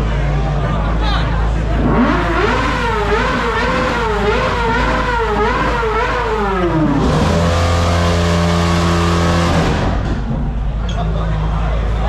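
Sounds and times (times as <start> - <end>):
car engine revving: 1.5 - 10.8.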